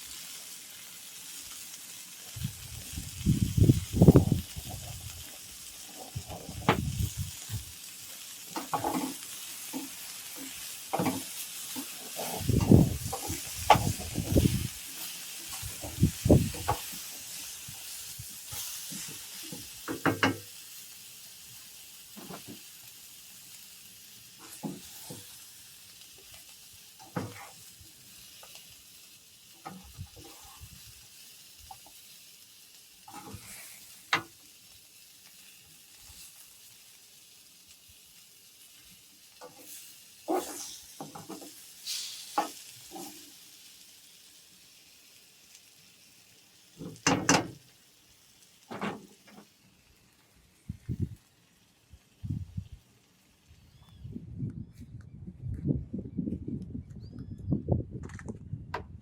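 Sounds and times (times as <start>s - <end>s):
food sizzling in a pan: 0.0s - 53.8s
utensil stirring and knocking pan: 8.5s - 17.2s, 18.5s - 20.5s, 40.3s - 41.6s, 46.9s - 47.6s.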